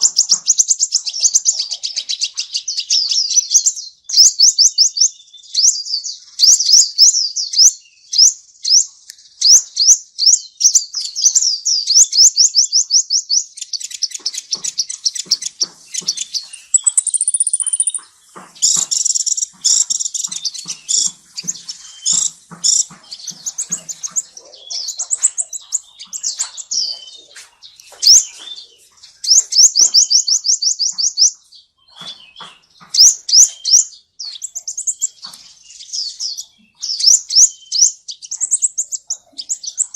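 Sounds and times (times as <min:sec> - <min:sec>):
songbirds chirping: 0:00.0 - 0:39.9
thin high bird trill: 0:13.7 - 0:39.9
sharp taps: 0:14.0 - 0:28.7, 0:29.3 - 0:35.6.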